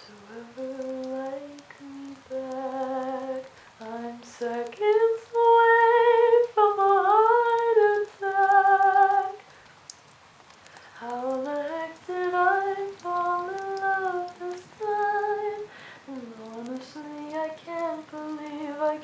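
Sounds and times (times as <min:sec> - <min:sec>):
woman singing wordless melody: 0:00.0 - 0:09.6, 0:10.9 - 0:19.0.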